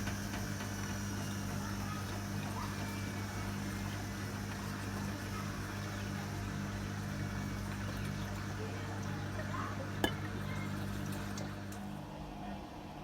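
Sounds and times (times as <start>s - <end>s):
washing machine drum turning: 0.0s - 8.6s.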